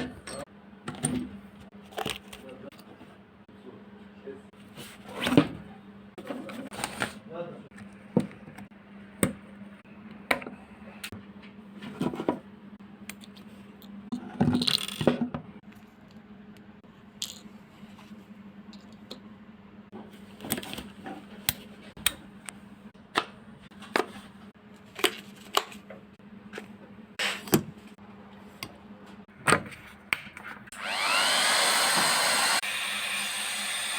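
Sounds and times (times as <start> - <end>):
heat gun fan whining: 30.7 - 33.9.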